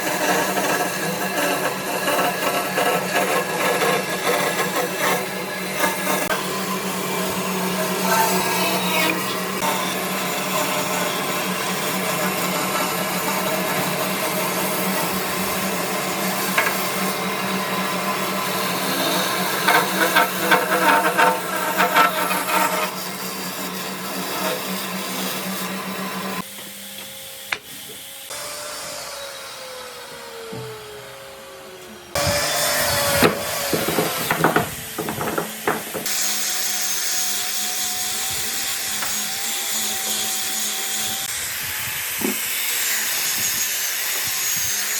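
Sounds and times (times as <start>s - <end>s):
power tool motor cutting wood: 0.0s - 44.9s
sharp knocks: 33.2s - 36.2s.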